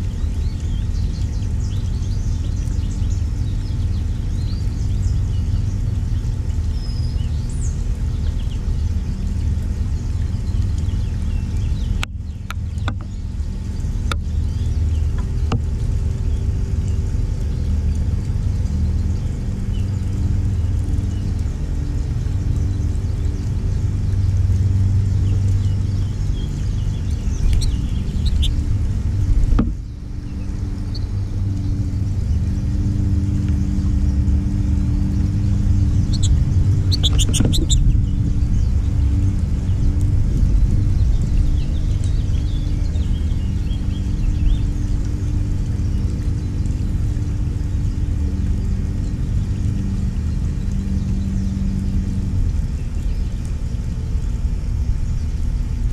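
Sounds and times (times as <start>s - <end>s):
mechanical rumble with hum: 0.0s - 55.9s
small birds chirping: 0.0s - 55.9s
high bird chirps: 35.9s - 38.0s.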